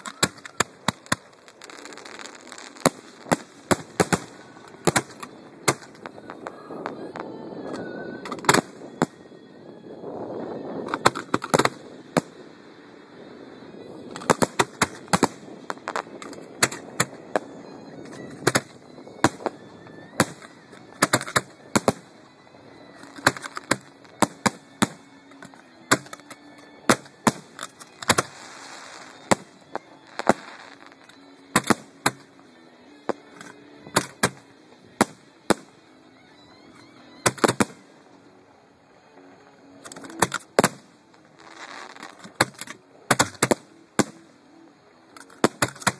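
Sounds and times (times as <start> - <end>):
fireworks bangs: 0.0 - 9.2, 13.8 - 22.2, 22.8 - 32.3, 37.2 - 38.0, 39.9 - 44.2
fireworks crackling: 0.0 - 36.0, 36.6 - 45.9.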